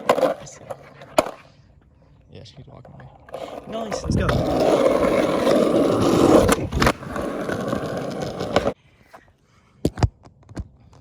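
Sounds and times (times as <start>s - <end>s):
skateboard wheels rolling on concrete: 0.0s - 2.2s, 2.8s - 9.3s.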